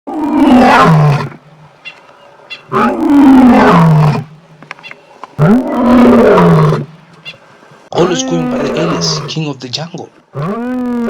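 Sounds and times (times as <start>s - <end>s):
lion roaring: 0.1s - 1.5s, 2.7s - 4.4s, 5.4s - 7.0s, 7.9s - 9.5s, 10.3s - 11.0s.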